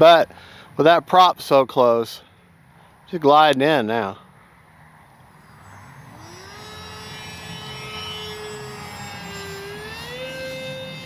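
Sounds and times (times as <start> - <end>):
electric motor and propeller whining: 5.1 - 11.0.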